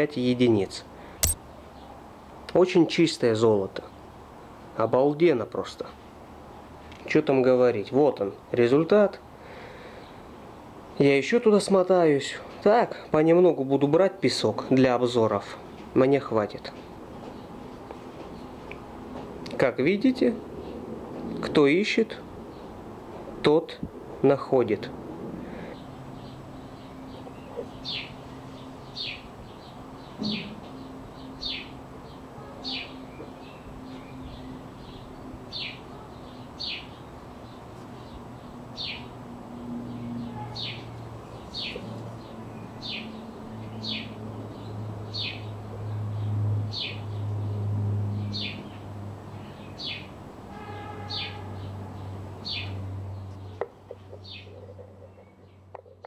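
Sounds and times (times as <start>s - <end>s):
small bird chirping: 40.0s - 44.2s, 52.4s - 56.0s.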